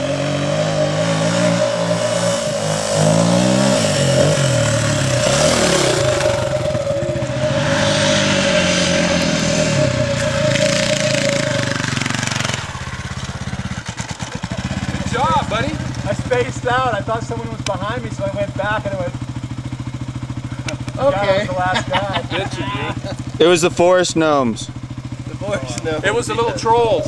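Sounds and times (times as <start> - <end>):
steady high tone: 0.0 - 13.9
dirt bike engine revving: 0.0 - 27.0.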